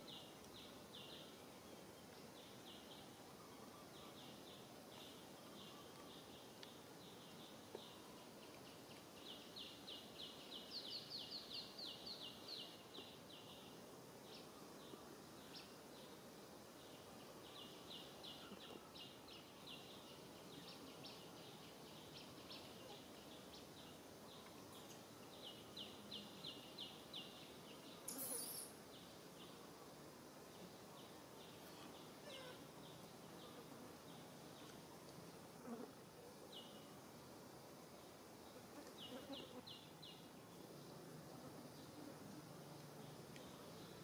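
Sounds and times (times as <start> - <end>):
faint outdoor background noise: 0.0 - 44.0.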